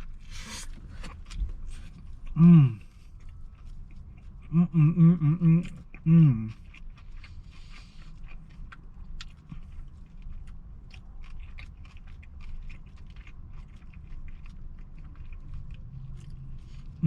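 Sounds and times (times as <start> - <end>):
chewing crispy fried chicken: 0.0 - 17.0.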